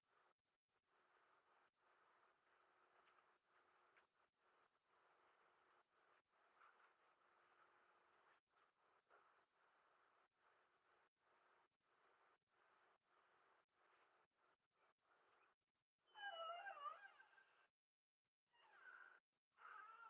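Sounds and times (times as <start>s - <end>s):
crickets chirping faintly: 0.0s - 15.6s
soft insect hum: 0.1s - 15.6s.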